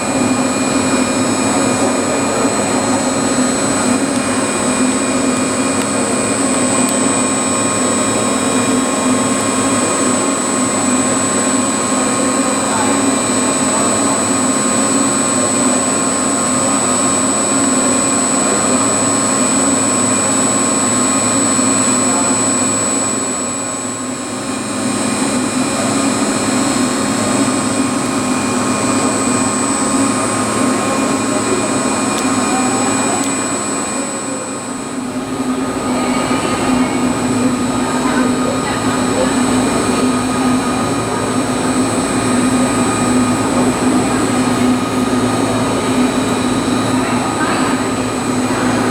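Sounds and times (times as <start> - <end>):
machinery hum: 0.0 - 48.9
faint voices: 25.4 - 48.9.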